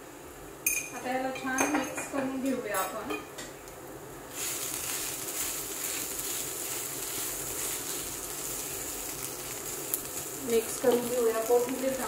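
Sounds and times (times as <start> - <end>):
food frying in a pan: 3.5 - 12.0.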